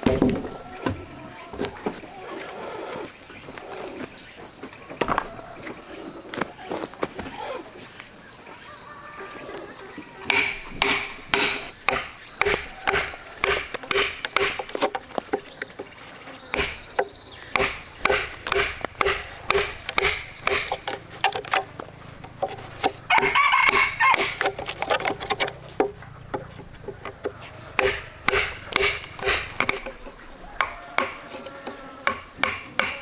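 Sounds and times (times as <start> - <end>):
high insect drone: 0.0 - 33.0
blows striking wood: 10.2 - 31.3, 32.0 - 33.0.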